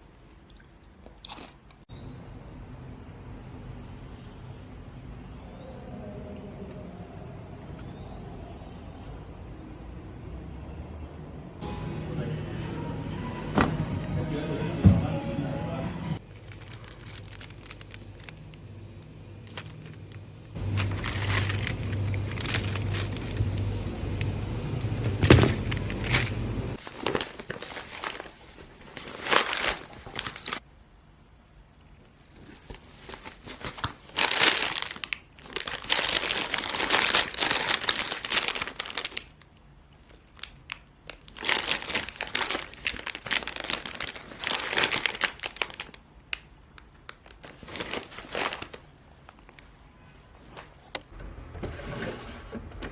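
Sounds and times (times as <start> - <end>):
low steady hum: 11.6 - 26.8
packaging crinkling and rustling: 16.2 - 18.8, 19.4 - 30.6, 31.9 - 51.1.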